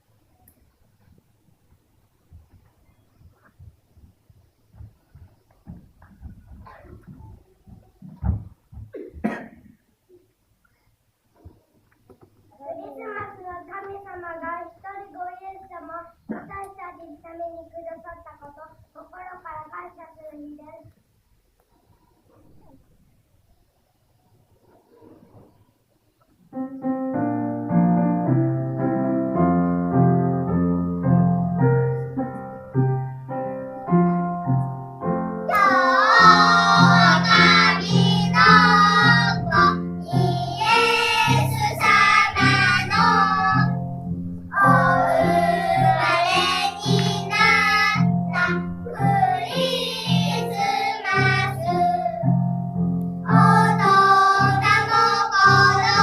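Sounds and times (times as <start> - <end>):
children singing: 35.5 - 43.8, 44.5 - 52.4, 53.3 - 56.0.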